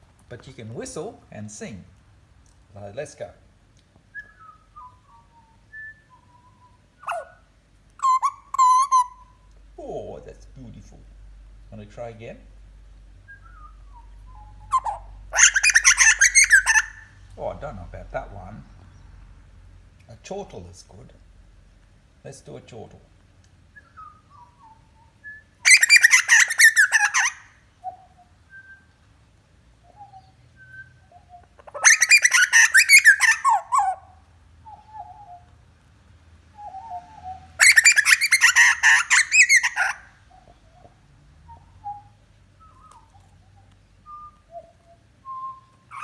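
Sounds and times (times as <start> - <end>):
soft whistled bird notes: 4.1 - 7.4, 13.2 - 17.2, 23.8 - 27.3, 36.5 - 46.0
bird harsh chortling calls: 7.0 - 7.4, 8.0 - 9.9, 14.4 - 17.5, 25.7 - 27.5, 31.6 - 35.4, 36.7 - 40.9.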